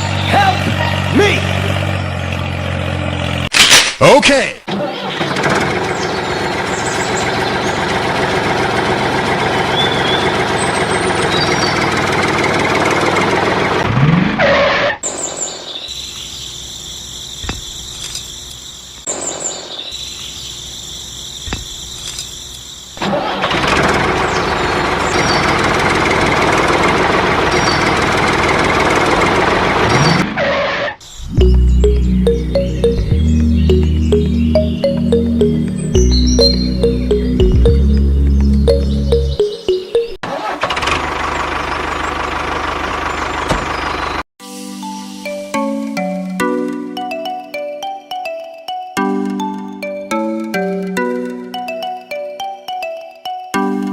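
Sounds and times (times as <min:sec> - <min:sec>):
engine running: 0:00.0 - 0:03.5, 0:04.7 - 0:14.4, 0:23.0 - 0:30.2, 0:31.2 - 0:44.2.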